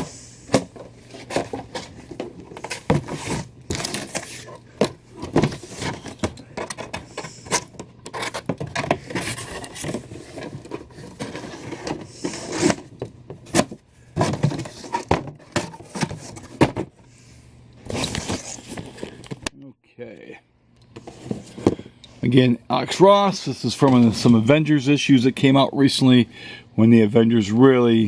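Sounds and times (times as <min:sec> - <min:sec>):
cardboard scraping and tapping: 0:00.5 - 0:16.9.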